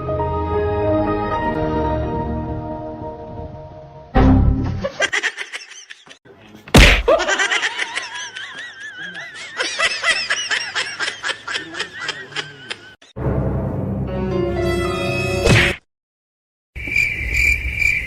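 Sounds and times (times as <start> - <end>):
person laughing hard: 4.8 - 6.2, 7.0 - 13.0.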